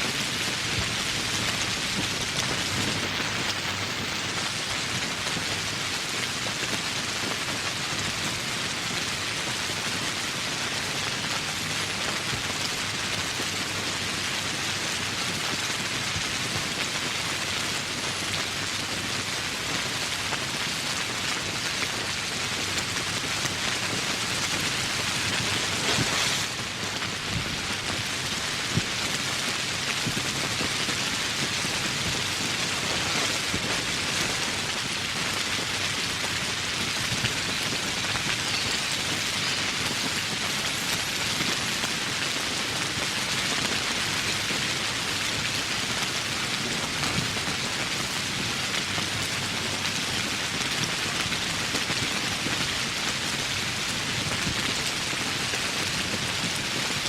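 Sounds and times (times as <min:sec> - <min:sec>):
steady rain hissing: 0:00.0 - 0:57.0.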